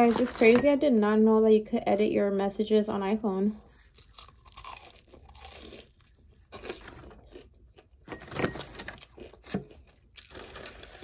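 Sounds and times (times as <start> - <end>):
crunching and chewing crisp food: 3.6 - 11.0.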